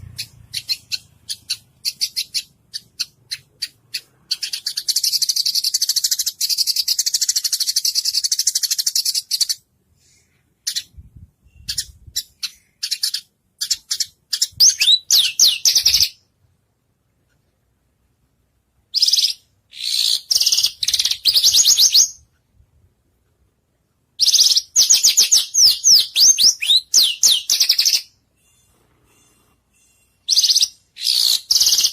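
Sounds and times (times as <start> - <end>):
songbird trilling and whistling: 0.0 - 9.6, 11.5 - 16.2, 18.9 - 22.2, 24.2 - 28.7, 29.8 - 31.9.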